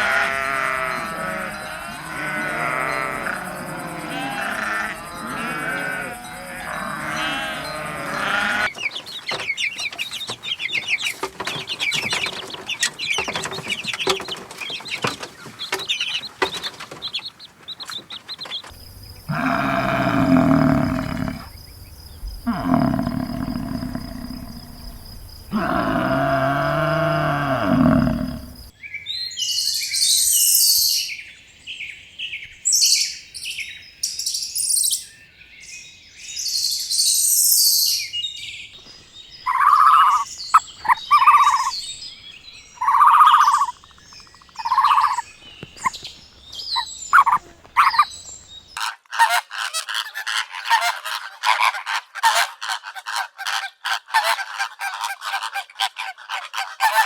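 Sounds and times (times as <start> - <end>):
loud poultry honks: 0.0 - 8.7, 19.2 - 21.5, 25.5 - 28.6, 48.8 - 57.0
low animal call: 0.0 - 8.7, 18.7 - 21.6, 22.2 - 28.7
rapid poultry chatter: 7.0 - 21.6, 39.5 - 41.7, 42.8 - 45.3, 46.8 - 48.0, 48.8 - 57.0
high chirping: 39.4 - 42.2, 42.8 - 48.7.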